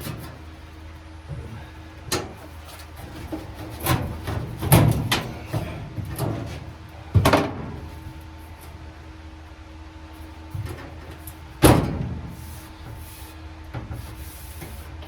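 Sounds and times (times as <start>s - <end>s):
knocks and clunks: 3.0s - 7.9s.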